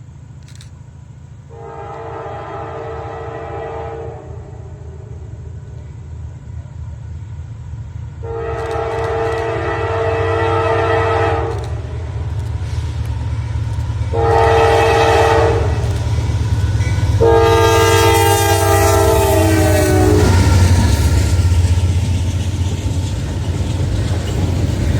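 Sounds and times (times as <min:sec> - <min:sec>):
low rumble of train: 0:00.0 - 0:24.9
locomotive air horn: 0:01.5 - 0:05.3, 0:08.2 - 0:12.1, 0:14.1 - 0:16.0, 0:16.8 - 0:21.0.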